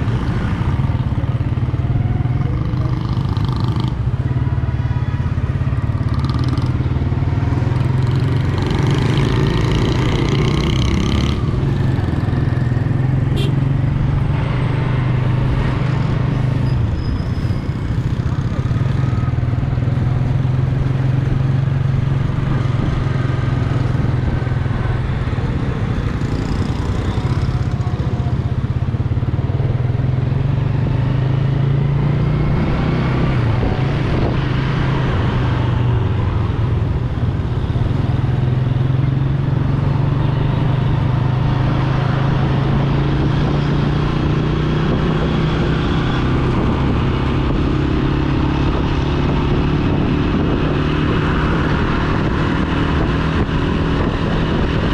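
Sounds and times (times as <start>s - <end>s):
motorcycle engine running: 17.7s - 54.9s.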